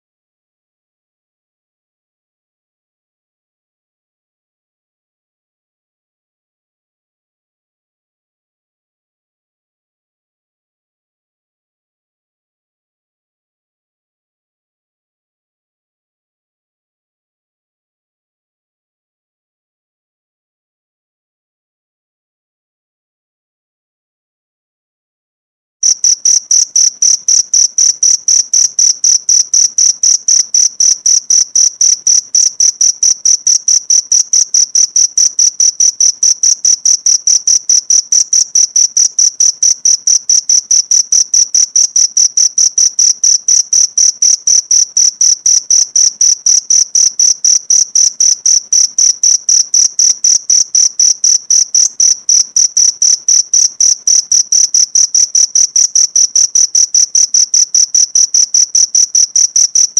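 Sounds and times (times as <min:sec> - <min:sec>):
cricket chirping: 0:25.8 - 0:59.9.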